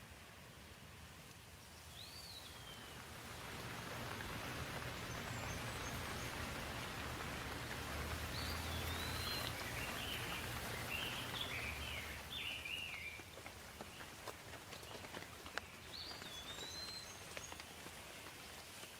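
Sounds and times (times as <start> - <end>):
steady rainfall: 0.0 - 18.9
bird chirping: 1.7 - 3.0, 4.8 - 7.0, 8.1 - 14.1, 15.6 - 17.6.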